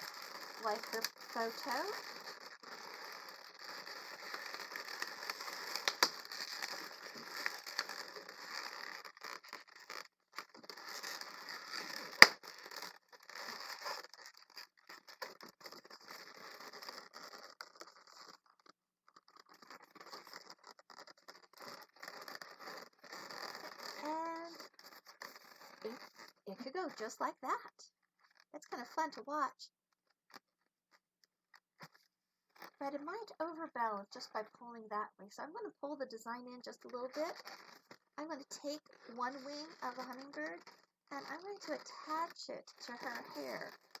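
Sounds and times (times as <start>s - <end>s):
balloons rubbing and scraping: 0.0s - 27.6s, 36.8s - 44.0s.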